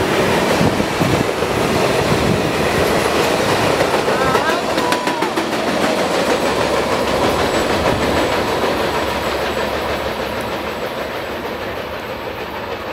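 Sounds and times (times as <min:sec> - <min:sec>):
train wheels rumbling and rattling: 0:00.0 - 0:12.9.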